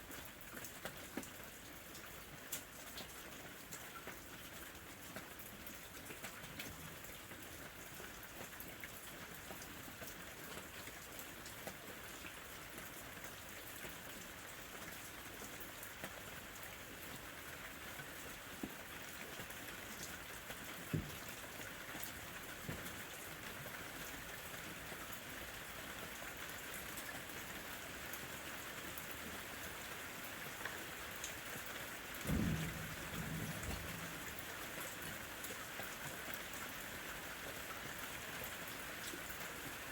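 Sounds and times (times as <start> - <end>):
rain falling: 0.0 - 39.9
raindrop ticks: 1.9 - 4.3, 32.2 - 36.0.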